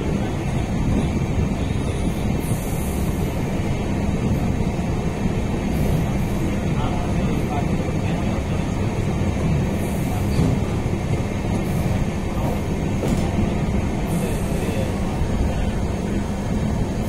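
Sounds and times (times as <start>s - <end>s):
train wheels rumbling on rails: 0.0s - 17.0s
hiss: 2.1s - 3.5s, 14.0s - 14.9s.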